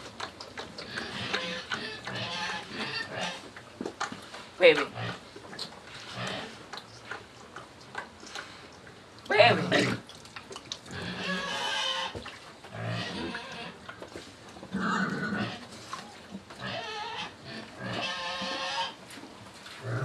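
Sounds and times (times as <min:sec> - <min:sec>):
pigs squealing: 0:00.9 - 0:03.5, 0:10.9 - 0:12.2, 0:16.6 - 0:19.0.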